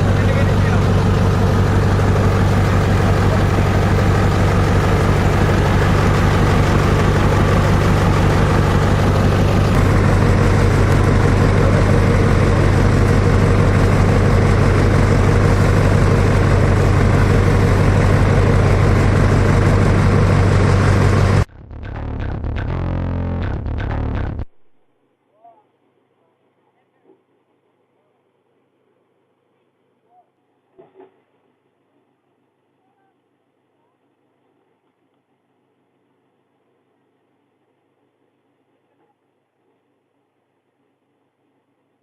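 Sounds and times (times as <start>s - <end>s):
chopper-shredder machine humming: 0.0s - 24.4s.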